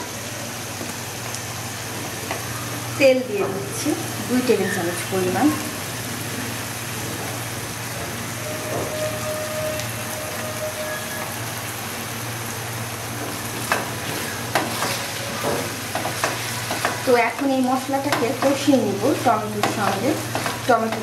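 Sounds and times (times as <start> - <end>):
gravy sizzling in oil: 0.0 - 21.0
spatula stirring in pan: 13.4 - 21.0
spatula knocking on pan: 13.6 - 18.7, 19.4 - 21.0.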